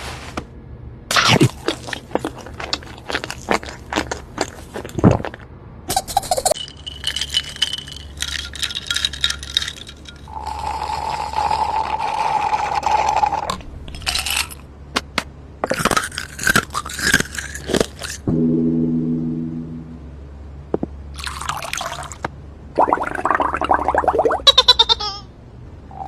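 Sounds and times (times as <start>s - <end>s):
food crunching: 1.1s - 5.4s, 6.6s - 18.3s.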